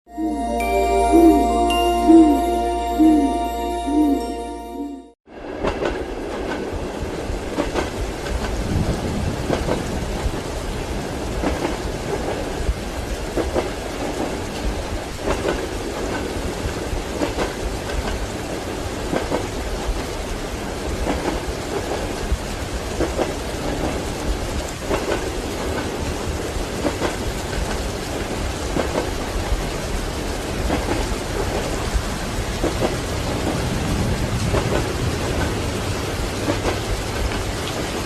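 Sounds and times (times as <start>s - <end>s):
train wheels rumbling on track: 5.3s - 38.0s
rain hissing: 7.2s - 38.0s.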